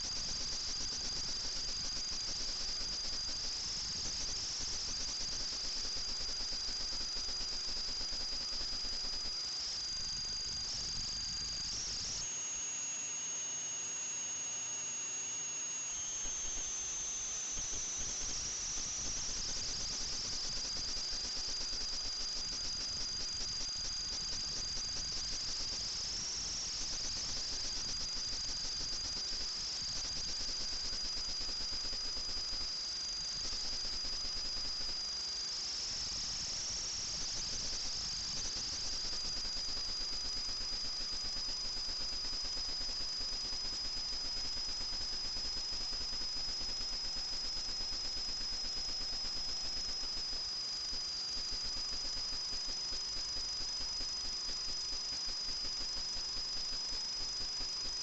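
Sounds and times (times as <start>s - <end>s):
drone motors whining: 11.6s - 20.0s.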